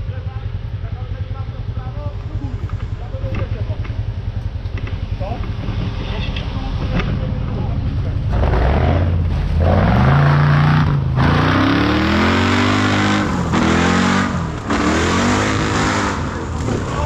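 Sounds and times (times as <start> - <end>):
off-road engine revving hard: 8.2 - 17.0.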